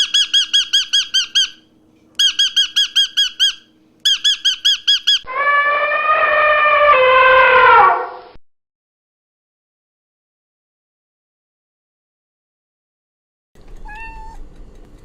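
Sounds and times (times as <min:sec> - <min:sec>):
high squeaky animal calls: 0:00.0 - 0:01.6, 0:02.2 - 0:08.0, 0:13.8 - 0:14.4
long pitched animal call: 0:05.2 - 0:08.3.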